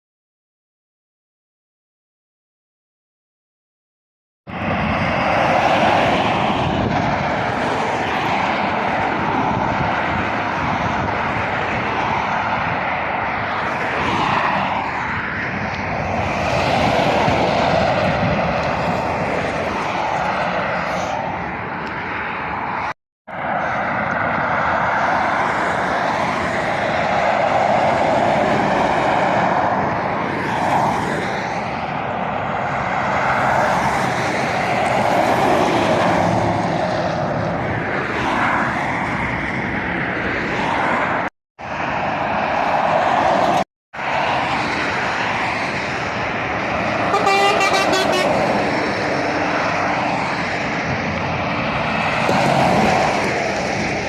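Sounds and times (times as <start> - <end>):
heavy road traffic passing: 4.5 - 54.0
vehicle horn: 47.1 - 48.5.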